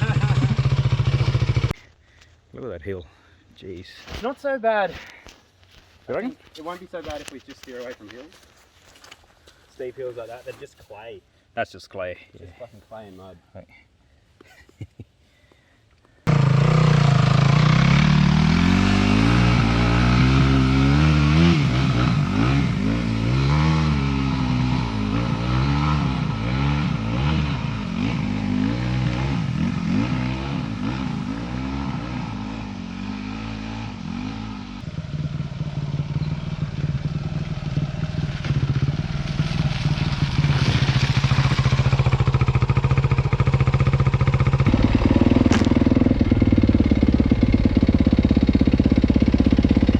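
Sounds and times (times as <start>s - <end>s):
dirt bike engine revving: 0.0s - 1.7s, 16.3s - 49.9s.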